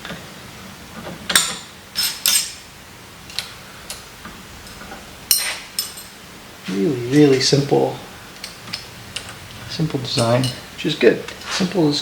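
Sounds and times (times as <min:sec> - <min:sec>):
metal parts clinking: 0:01.3 - 0:02.6, 0:04.7 - 0:06.2, 0:10.1 - 0:10.7.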